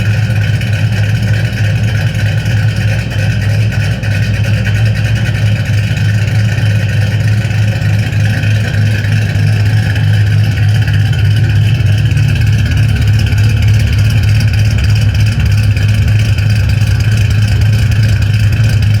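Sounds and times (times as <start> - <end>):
car exhaust low drone: 0.0 - 19.0.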